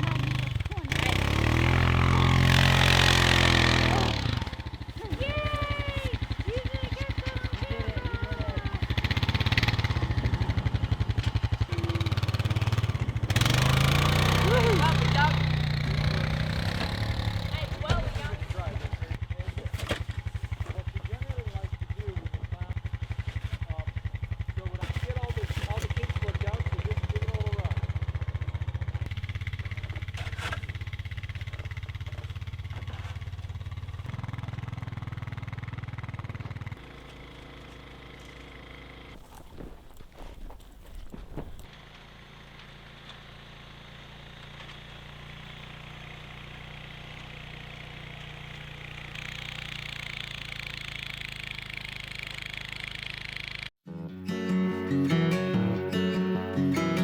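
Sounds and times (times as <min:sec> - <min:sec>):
vehicle engine throbbing: 0:00.0 - 0:19.3, 0:49.2 - 0:57.0.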